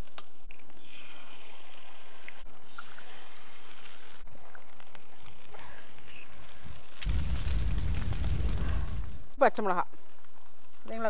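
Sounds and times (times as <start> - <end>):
onions sizzling on a griddle: 3.1 - 7.0.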